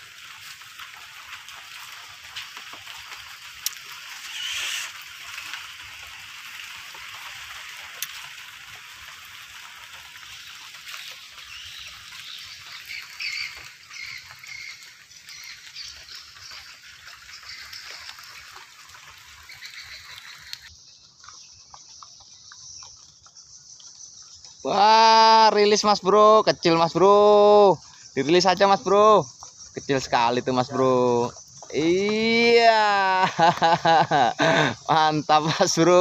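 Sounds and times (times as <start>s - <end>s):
hiss of rain and water: 0.0s - 21.2s, 23.7s - 36.0s
animal calls: 3.8s - 5.8s, 10.2s - 25.4s.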